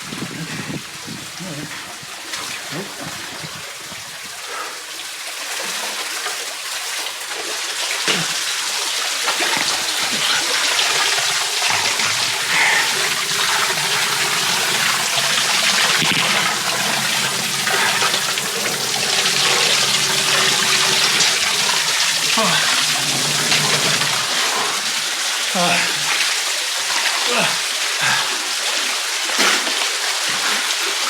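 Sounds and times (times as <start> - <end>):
water splashing and sloshing: 5.0 - 27.3.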